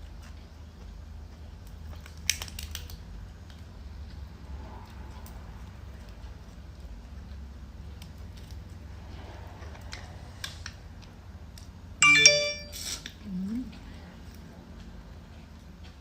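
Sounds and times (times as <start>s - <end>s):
bright multi-tone ring: 12.0s - 12.9s.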